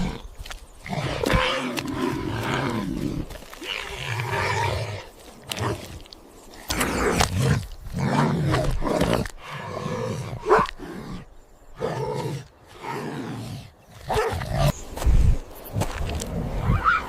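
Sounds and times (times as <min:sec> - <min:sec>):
animal growls and roars: 0:00.0 - 0:15.4.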